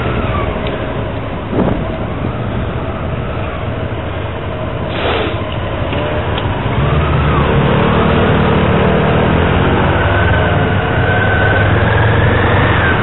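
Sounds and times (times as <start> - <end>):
wind rush on microphone: 0.0 - 6.7.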